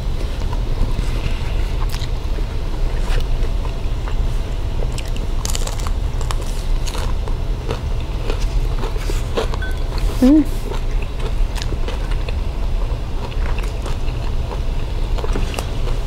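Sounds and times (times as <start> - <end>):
low hum: 0.0 - 16.0
people chewing and biting food: 0.0 - 16.0.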